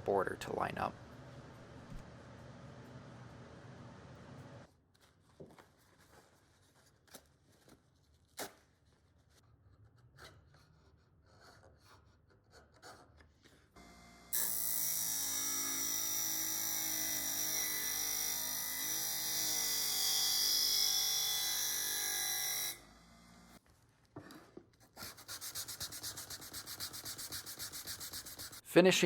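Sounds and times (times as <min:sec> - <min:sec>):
electric power tool running: 0:13.8 - 0:23.6.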